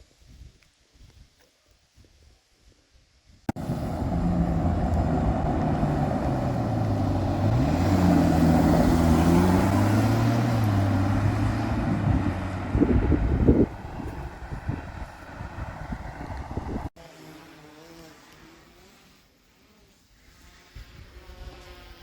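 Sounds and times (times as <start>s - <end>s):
car engine starting and idling: 3.5s - 16.9s.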